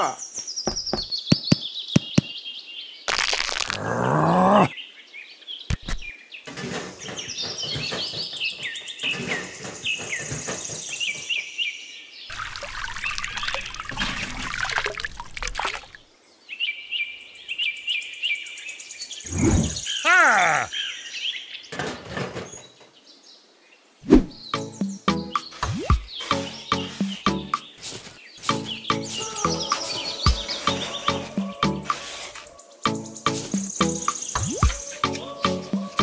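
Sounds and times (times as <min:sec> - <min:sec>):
birds chirping: 0:00.0 - 0:36.0
water spilling: 0:12.3 - 0:16.0
wet sand scraping: 0:26.1 - 0:32.6, 0:33.2 - 0:36.0.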